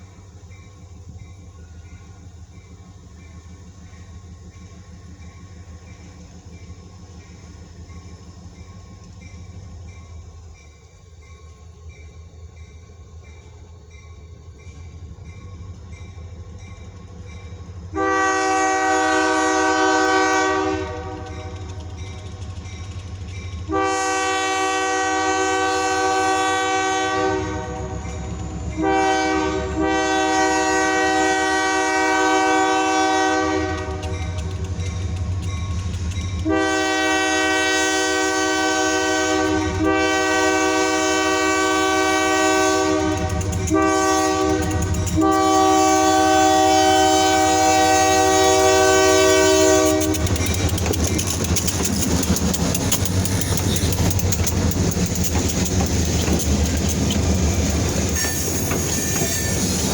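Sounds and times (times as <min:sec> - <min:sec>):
wheels clicking over rail joints: 0:00.0 - 0:18.0, 0:19.2 - 0:26.6, 0:27.5 - 0:29.0, 0:31.6 - 0:38.3, 0:41.3 - 0:59.9
diesel engines rumbling: 0:14.4 - 0:59.9
locomotive air horn: 0:17.9 - 0:21.8, 0:23.7 - 0:28.2, 0:28.8 - 0:34.4, 0:36.4 - 0:50.5.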